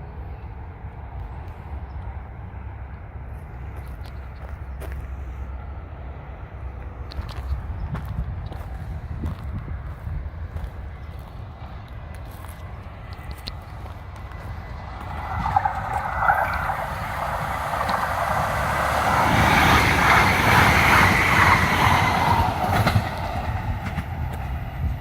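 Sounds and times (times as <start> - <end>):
train wheels on rails: 2.8 - 25.0.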